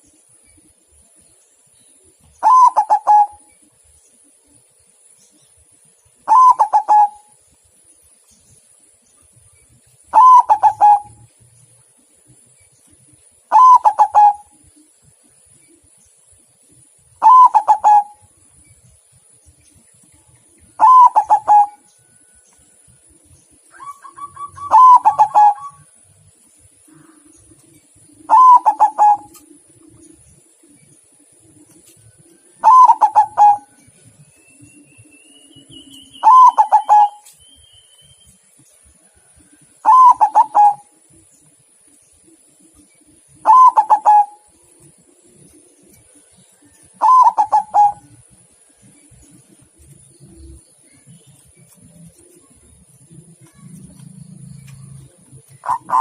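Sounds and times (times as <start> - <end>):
dove cooing song: 2.3 - 3.6, 6.2 - 7.4, 10.1 - 11.4, 13.4 - 14.8, 17.2 - 18.3, 20.7 - 22.3, 23.7 - 26.0, 26.8 - 33.9, 34.6 - 37.4, 39.1 - 41.3, 42.3 - 50.6, 51.7 - 56.0.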